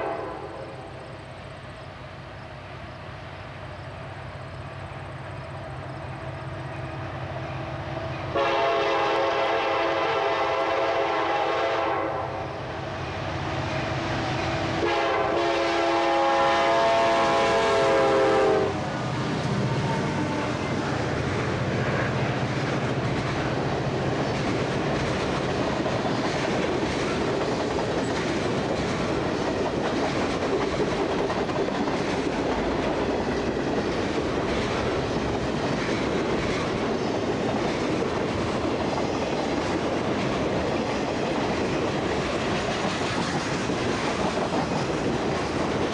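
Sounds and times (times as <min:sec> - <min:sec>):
train horn blasts: 0:00.0 - 0:01.0, 0:06.1 - 0:21.0
train wheels rolling on rails: 0:00.0 - 0:45.9.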